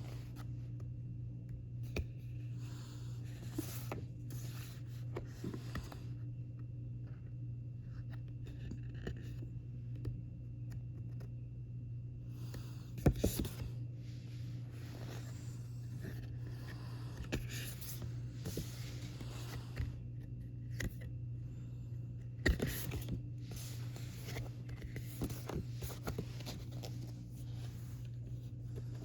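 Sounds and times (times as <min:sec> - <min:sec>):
paper and card rustling: 0:14.5 - 0:21.1, 0:22.3 - 0:29.0.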